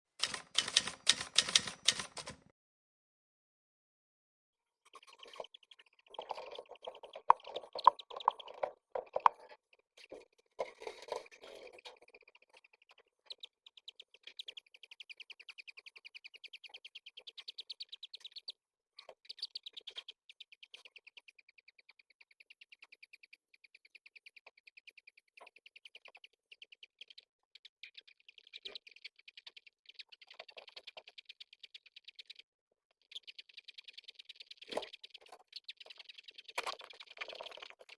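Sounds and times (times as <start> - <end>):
squabs begging peeps: 4.9 - 9.5, 33.0 - 37.9.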